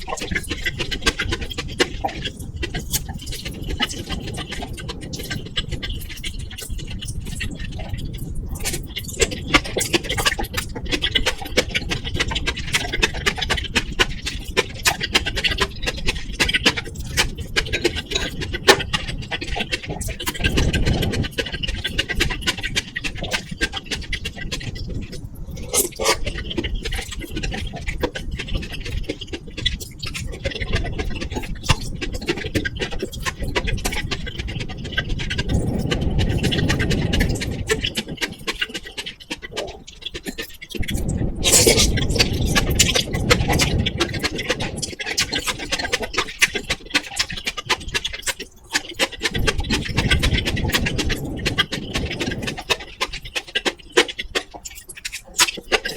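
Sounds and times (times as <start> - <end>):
chewing food close up: 0.0 - 55.9
microphone crackling and clicking: 0.0 - 55.9
heavy low mouth sounds: 40.9 - 43.1.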